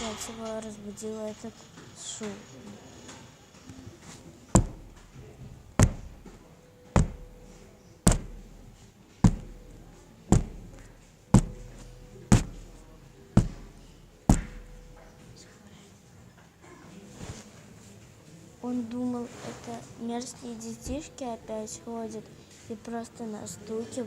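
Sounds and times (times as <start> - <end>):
sharp knocks on hard surface: 4.6 - 5.0, 5.8 - 6.4, 7.0 - 7.4, 8.1 - 8.6, 9.2 - 9.6, 10.3 - 12.7, 13.4 - 14.8.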